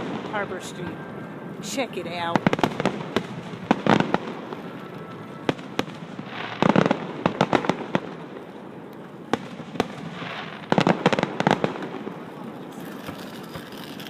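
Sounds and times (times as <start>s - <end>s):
fireworks bangs and pops: 2.3s - 8.5s, 9.3s - 14.0s
rapid firework crackling: 2.3s - 8.6s, 9.2s - 14.0s.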